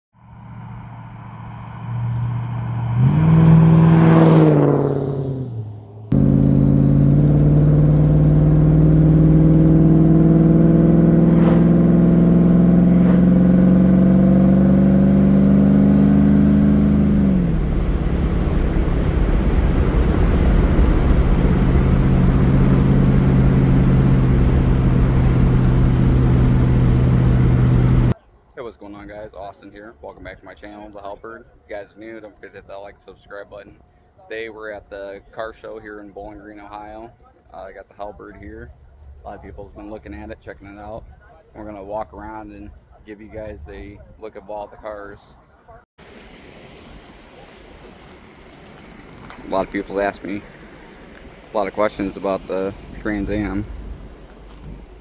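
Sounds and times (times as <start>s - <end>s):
car engine revving and idling: 0.6s - 28.2s, 51.5s - 55.0s.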